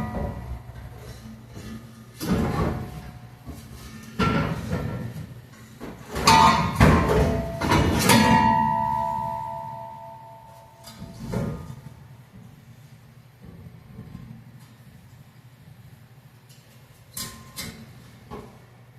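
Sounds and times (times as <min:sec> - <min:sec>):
metal clanking with bell-like ring: 0:06.3 - 0:11.7.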